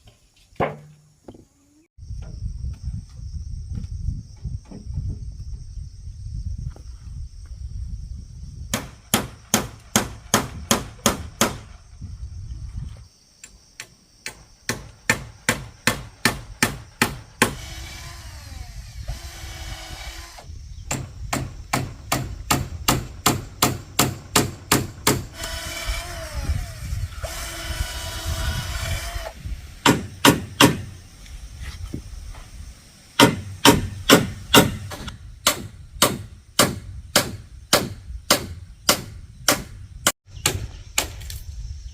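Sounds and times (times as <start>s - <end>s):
hammer driving nails into wood: 20.9s - 25.4s, 29.8s - 30.9s, 33.2s - 39.7s.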